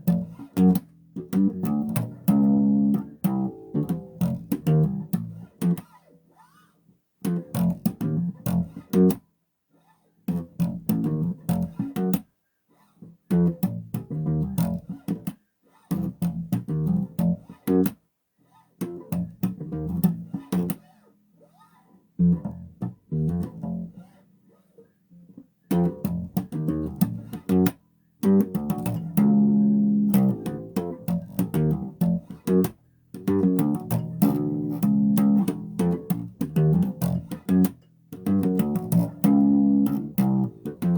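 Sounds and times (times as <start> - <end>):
bass guitar plucked notes: 0.0 - 5.8, 7.3 - 9.2, 10.3 - 12.2, 13.3 - 15.2, 15.9 - 17.9, 18.8 - 20.7, 22.2 - 24.0, 25.7 - 40.9.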